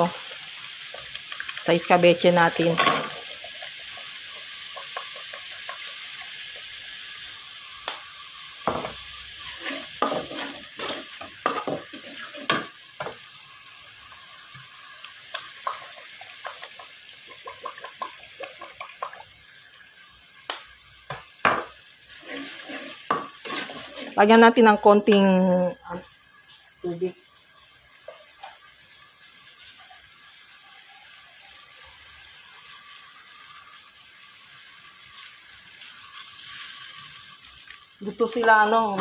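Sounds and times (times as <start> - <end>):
food sizzling in hot oil: 0.0 - 39.0
metal spatula scraping a wok: 8.8 - 13.1, 22.1 - 24.3.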